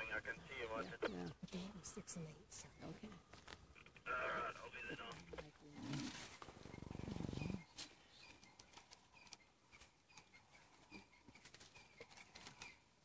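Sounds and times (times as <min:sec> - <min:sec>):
faint bird chirps: 0:05.1 - 0:13.0.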